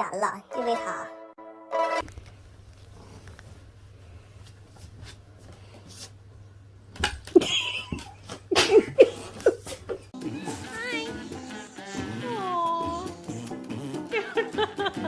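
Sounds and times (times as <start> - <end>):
cats hissing and crying: 9.3 - 14.0.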